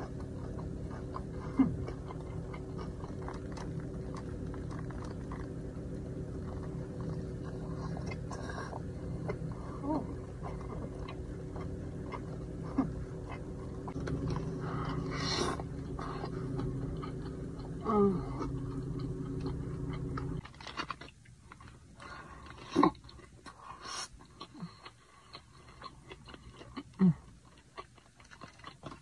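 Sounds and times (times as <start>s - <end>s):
person chewing food: 0.0s - 29.0s
steady low hum: 0.0s - 29.0s
person humming: 9.6s - 10.8s, 14.1s - 19.6s.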